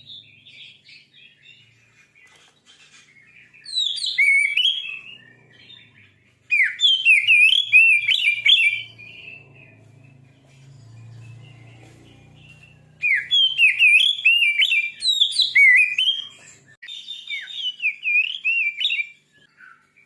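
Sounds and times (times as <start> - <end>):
soft bird chattering: 0.0 - 16.8
bird singing whistled phrases: 3.5 - 9.4, 12.5 - 19.9.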